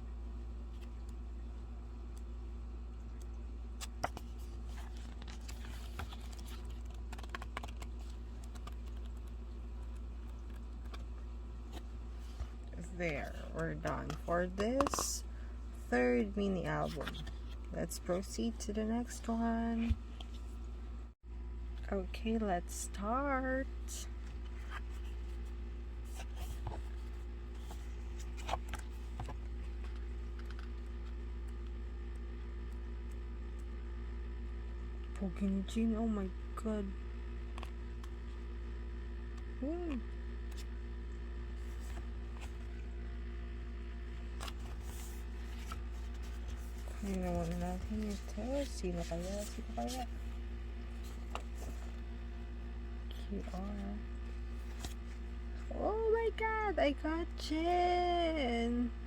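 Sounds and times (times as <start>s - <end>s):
steady low hum: 0.0s - 59.0s
paper and plastic rustling: 3.8s - 9.2s, 44.4s - 52.0s
packaging clicks and rustles: 3.8s - 11.1s.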